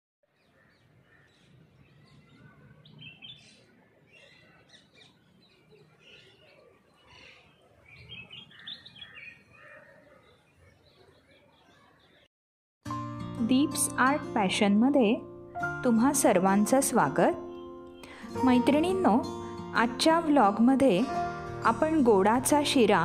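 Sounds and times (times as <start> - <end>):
small birds chirping and twittering: 0.3 - 12.3, 17.4 - 18.3.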